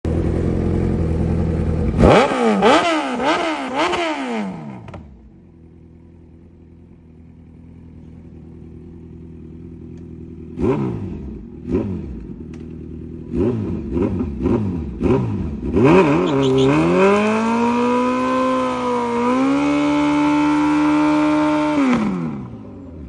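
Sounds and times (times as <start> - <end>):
motorcycle engine idling: 0.0 - 2.0, 4.8 - 16.9
motorcycle engine revving: 0.1 - 23.0.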